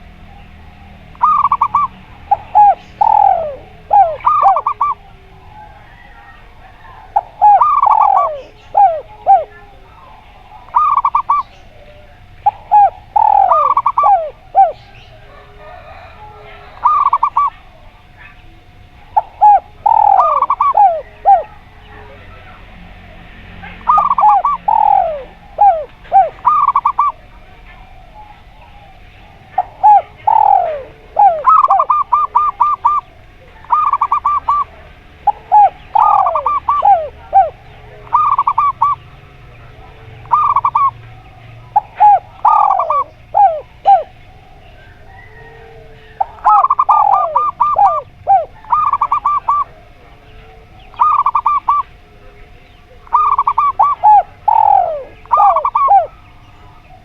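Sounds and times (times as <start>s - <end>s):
doves cooing: 0.0s - 57.0s
faint low hum: 0.0s - 57.0s.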